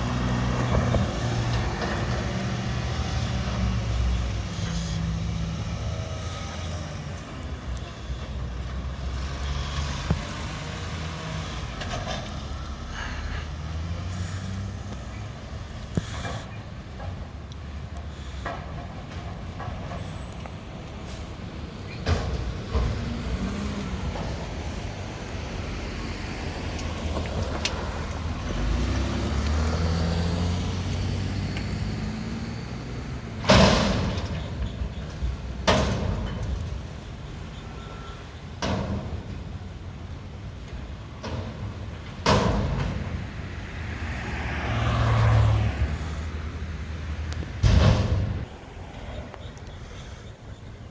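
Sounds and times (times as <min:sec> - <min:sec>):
sharp bangs: 0:47.5 - 0:48.8.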